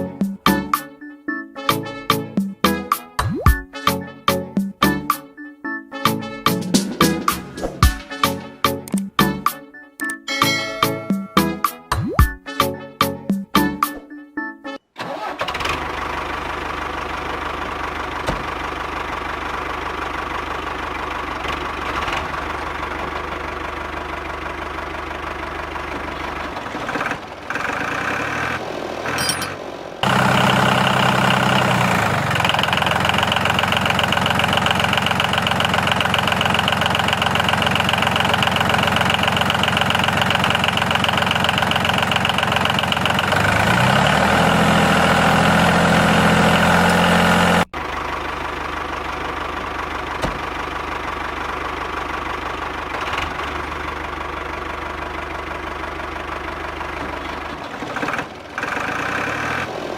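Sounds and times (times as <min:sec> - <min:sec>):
small engine running: 0:15.1 - 0:59.9.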